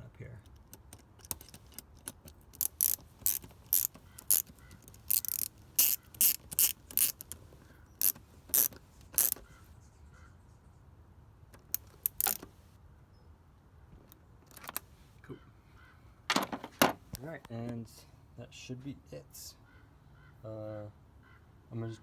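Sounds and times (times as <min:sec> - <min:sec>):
ratchet wrench clicking: 0:00.4 - 0:07.4, 0:08.0 - 0:09.6, 0:11.6 - 0:12.5.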